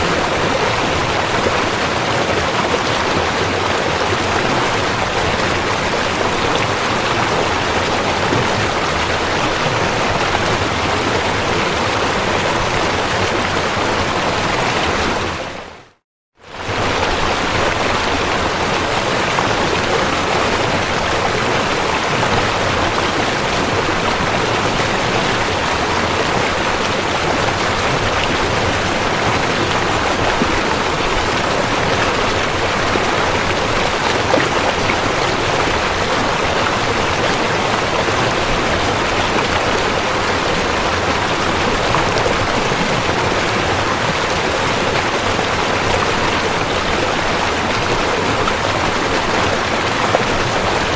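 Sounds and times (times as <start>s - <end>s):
river water flowing: 0.0s - 50.9s.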